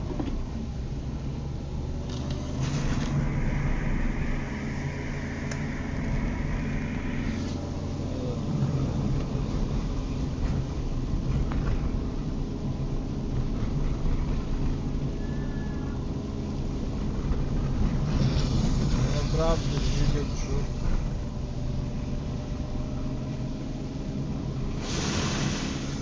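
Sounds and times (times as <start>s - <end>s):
car engine and road rumble: 0.0s - 26.0s
hiss: 2.6s - 7.7s, 18.1s - 20.7s, 24.7s - 26.0s.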